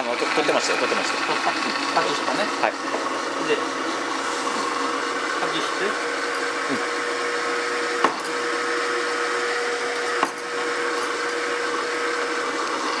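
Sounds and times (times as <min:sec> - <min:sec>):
machine whining: 0:00.0 - 0:13.0.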